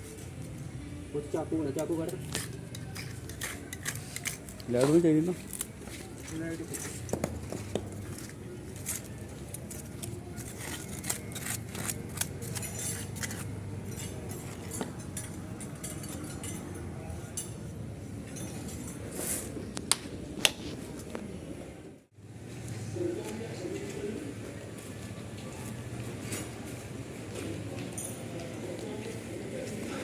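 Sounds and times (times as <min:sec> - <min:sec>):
hand tools clicking and scraping: 0:01.6 - 0:20.6
knife cutting: 0:09.0 - 0:13.5.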